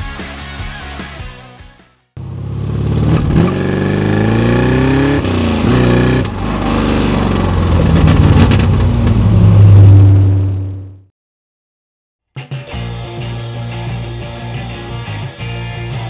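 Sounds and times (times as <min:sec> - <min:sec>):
car engine accelerating: 0:02.2 - 0:11.1.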